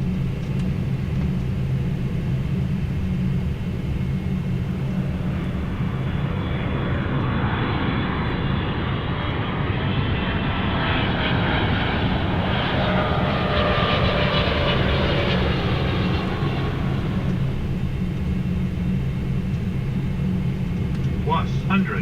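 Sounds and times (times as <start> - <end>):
airflow and jet engine rush: 0.0 - 22.0
whining engine tones: 11.3 - 22.0.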